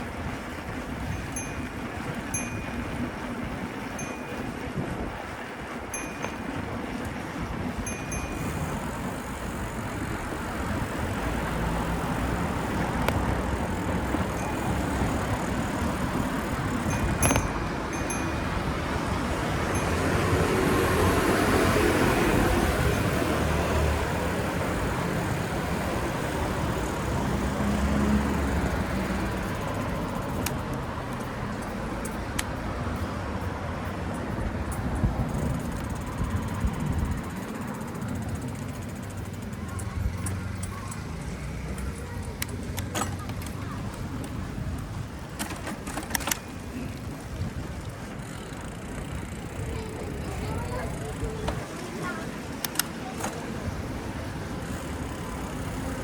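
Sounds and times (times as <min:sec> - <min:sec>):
traffic rumbling past: 0:05.4 - 0:56.0
sharp clicks or rattles: 0:45.4 - 0:46.5.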